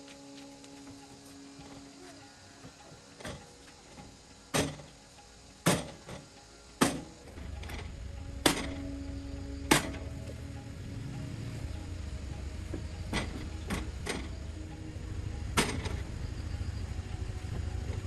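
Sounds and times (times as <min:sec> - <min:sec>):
low steady rumble: 0:07.3 - 0:18.0.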